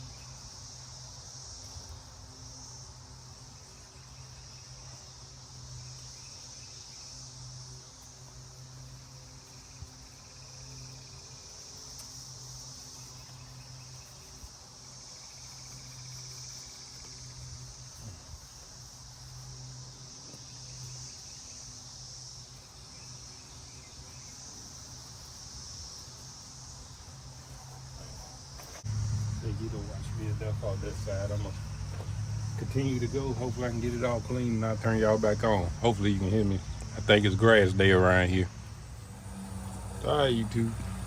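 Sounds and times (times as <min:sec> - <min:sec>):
high-pitched insect chorus: 0:00.0 - 0:41.0
low steady hum: 0:28.8 - 0:41.0.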